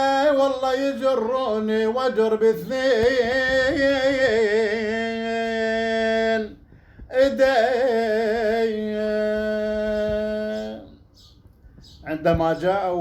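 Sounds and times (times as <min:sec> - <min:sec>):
man chanting a lament: 0:00.0 - 0:11.1, 0:12.0 - 0:13.0
man breathing: 0:06.6 - 0:07.1.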